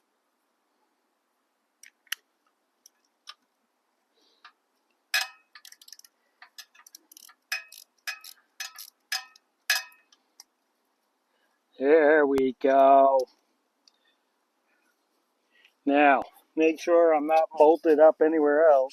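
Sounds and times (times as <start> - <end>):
metal tools clinking: 5.2 - 10.1.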